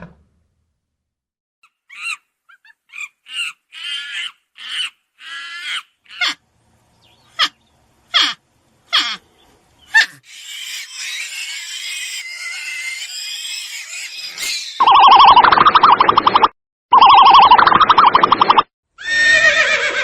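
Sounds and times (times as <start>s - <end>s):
high-pitched animal calls: 1.8s - 6.4s, 7.3s - 9.3s, 9.9s - 16.2s
chorus of animals calling: 3.0s - 6.4s, 7.3s - 9.2s.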